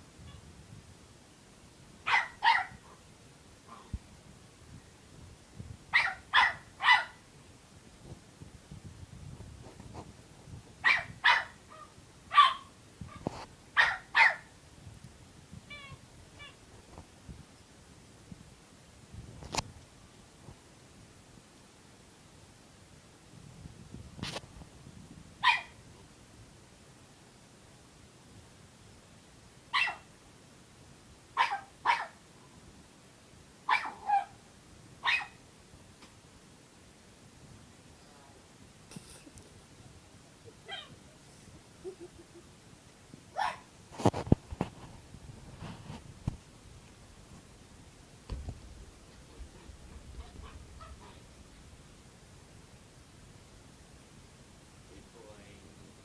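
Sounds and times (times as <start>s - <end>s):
puppy barking: 2.1s - 3.0s, 5.9s - 7.2s, 10.8s - 12.7s, 13.8s - 14.5s, 25.4s - 25.8s, 29.7s - 30.1s, 31.4s - 32.2s, 33.7s - 34.4s, 35.0s - 35.4s, 40.7s - 41.0s, 43.4s - 43.7s, 50.2s - 51.2s.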